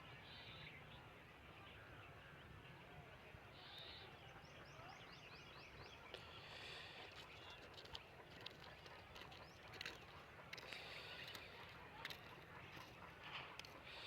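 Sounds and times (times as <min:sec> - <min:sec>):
bird calls: 0:03.5 - 0:14.0.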